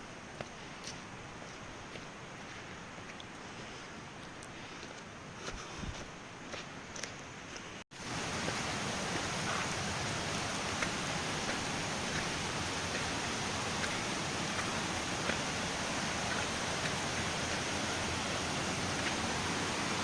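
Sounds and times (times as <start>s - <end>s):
flowing water rushing: 8.0s - 20.0s.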